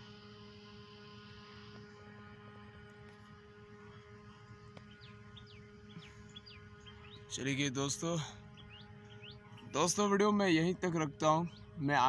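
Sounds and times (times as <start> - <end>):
faint steady hum with hiss: 0.0 - 12.0
small birds chirping: 3.8 - 12.0.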